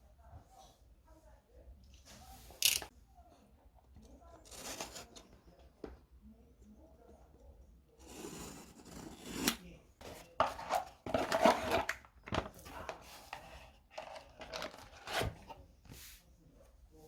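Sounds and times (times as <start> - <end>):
handling noise rustling and scraping: 4.2 - 5.6, 8.0 - 16.4.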